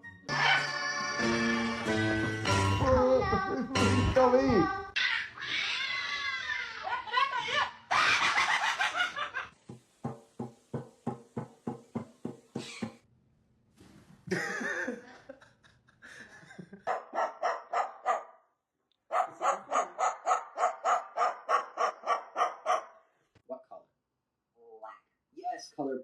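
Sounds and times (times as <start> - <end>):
dog barking rapidly: 16.9 - 18.4, 19.1 - 23.0.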